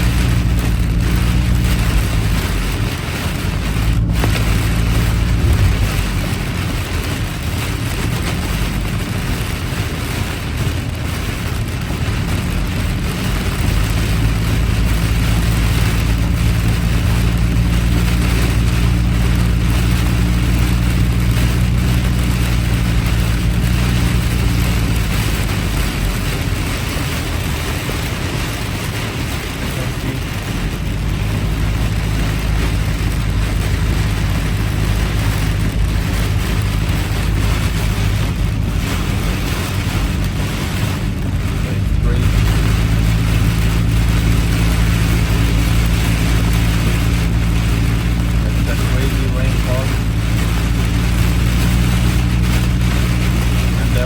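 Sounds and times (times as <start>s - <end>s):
low engine drone: 0.0s - 9.4s, 29.6s - 54.0s
heavy rain: 0.0s - 54.0s
tyre spray on wet road: 0.0s - 54.0s.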